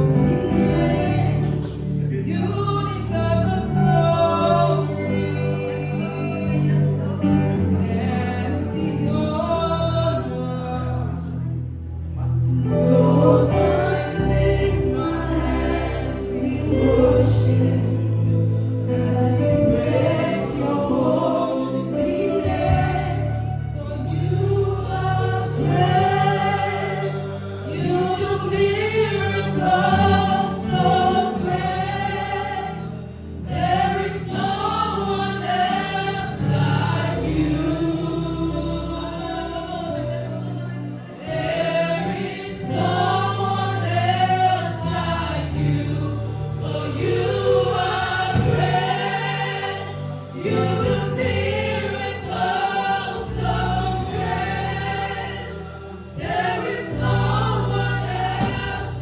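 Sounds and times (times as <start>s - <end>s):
congregation singing worship song: 0.0s - 59.0s
steady bass line: 0.0s - 59.0s.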